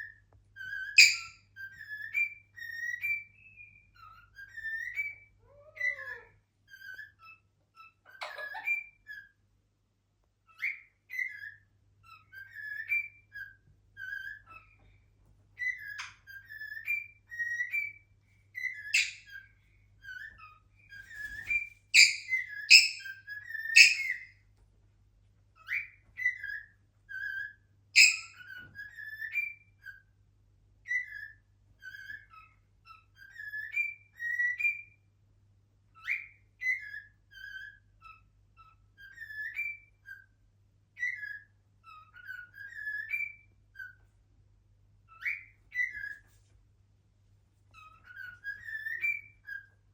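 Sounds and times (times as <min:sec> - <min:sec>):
cockatiel whistling: 0:00.0 - 0:09.4, 0:10.5 - 0:14.8, 0:15.6 - 0:24.3, 0:25.6 - 0:30.1, 0:30.8 - 0:35.0, 0:36.0 - 0:40.3, 0:41.0 - 0:44.1, 0:45.1 - 0:46.4, 0:47.7 - 0:49.9
sharp bird calls: 0:00.6 - 0:09.3, 0:18.6 - 0:24.4, 0:25.6 - 0:30.0.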